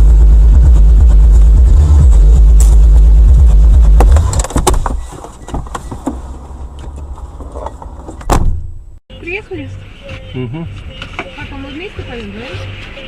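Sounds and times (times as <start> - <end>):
car rumbling on road: 0.0 - 13.0
loud thump: 3.8 - 6.2, 8.0 - 9.0.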